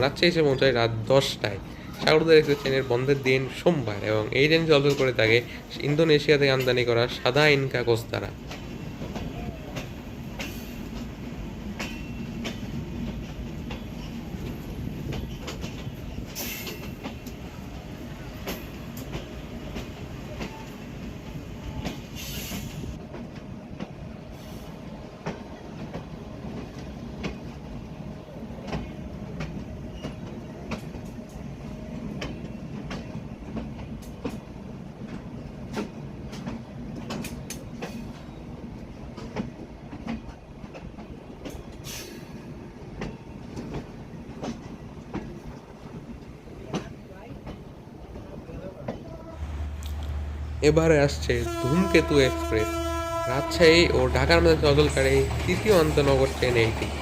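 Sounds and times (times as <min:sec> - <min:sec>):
train rumbling: 0:00.0 - 0:57.0
train wheel clicks over rails: 0:08.0 - 0:49.0.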